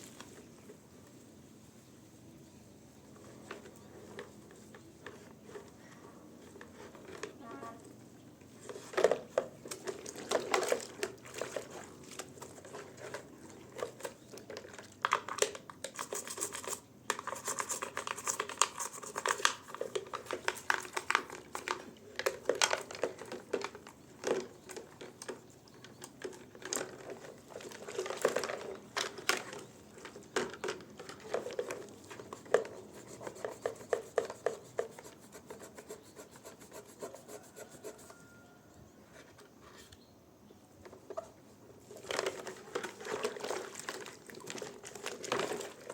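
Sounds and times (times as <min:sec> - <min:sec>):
hand scrubbing and scraping: 0:31.2 - 0:38.3.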